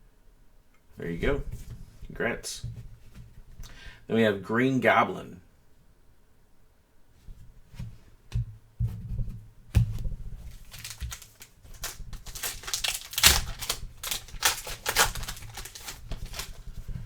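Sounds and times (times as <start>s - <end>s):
card pack wrapper crackling: 10.5s - 16.9s.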